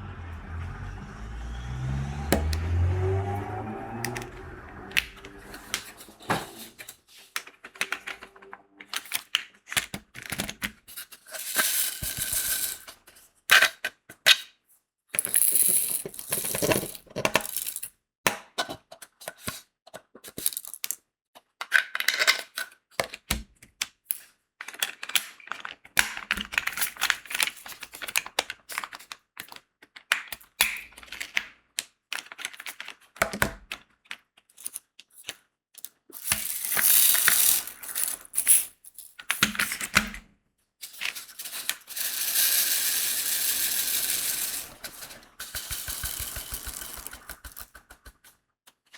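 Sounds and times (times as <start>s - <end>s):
rattling: 41.5s - 47.7s
drill pen clicking and tapping: 45.5s - 48.2s.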